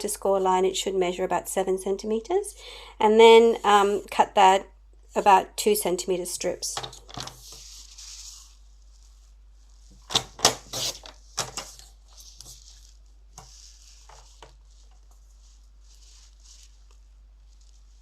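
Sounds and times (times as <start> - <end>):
paper rustling: 6.9 - 18.0
paper being cut: 10.6 - 11.1.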